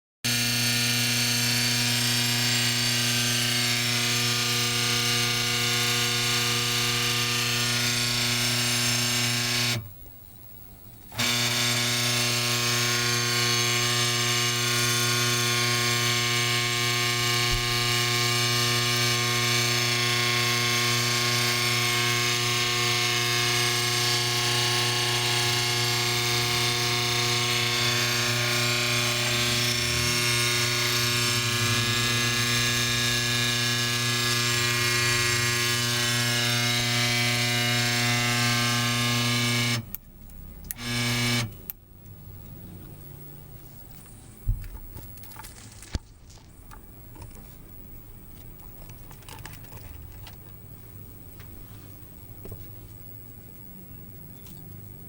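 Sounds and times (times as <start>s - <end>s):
spindle motor humming: 0.3s - 9.9s, 11.0s - 41.8s.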